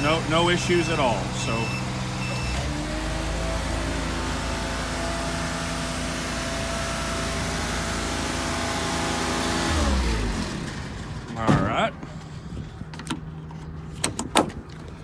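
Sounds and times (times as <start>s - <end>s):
truck engine running: 0.0s - 15.0s
reversing beeper: 1.3s - 2.7s.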